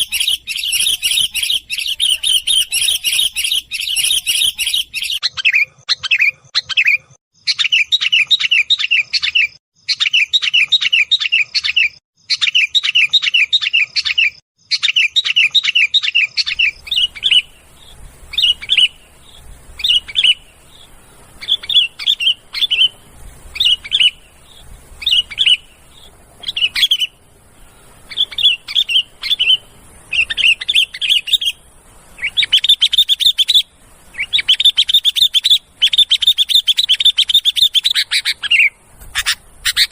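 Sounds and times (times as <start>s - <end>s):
bird chattering calls: 0.0s - 14.2s, 14.8s - 39.9s
faint high hiss: 16.6s - 37.9s.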